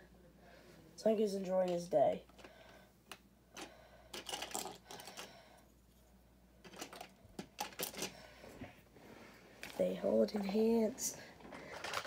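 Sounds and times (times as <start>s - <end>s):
plastic bricks clicking: 3.1s - 5.3s, 6.6s - 8.1s, 11.7s - 12.0s.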